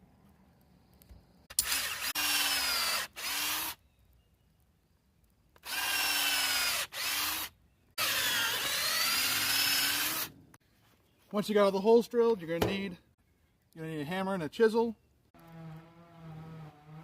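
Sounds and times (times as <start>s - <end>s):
electric drill boring into steel: 1.5s - 3.8s, 5.6s - 10.4s.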